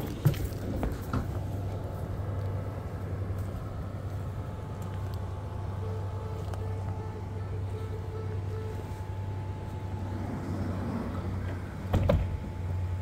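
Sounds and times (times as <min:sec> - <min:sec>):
train low hum: 0:00.0 - 0:13.0
faint high tone: 0:05.6 - 0:10.2
second faint tone: 0:05.6 - 0:11.6.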